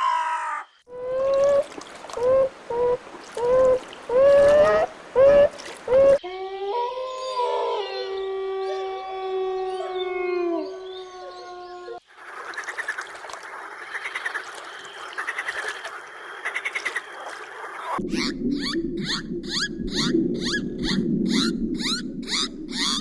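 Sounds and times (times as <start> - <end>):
frogs croaking: 1.0 - 6.2
crows cawing: 1.1 - 6.2
canine howling: 2.2 - 12.0.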